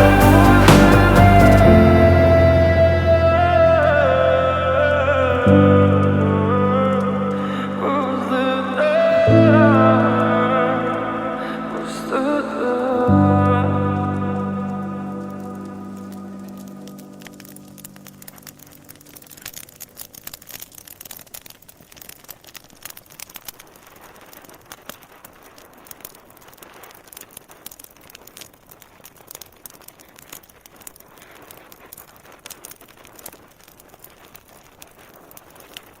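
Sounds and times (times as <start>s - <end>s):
music: 0.0s - 18.2s
wood fire crackling: 0.0s - 36.0s.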